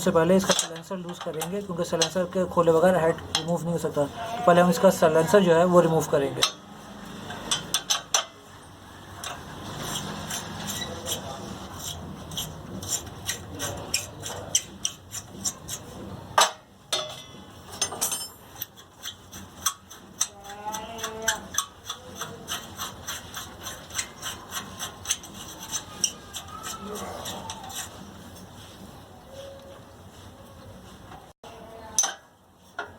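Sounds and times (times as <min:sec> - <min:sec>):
metal scraping and rubbing: 0:00.0 - 0:31.4
hand tools clicking on metal: 0:00.4 - 0:02.3, 0:03.1 - 0:03.7, 0:07.3 - 0:08.4, 0:11.8 - 0:27.9.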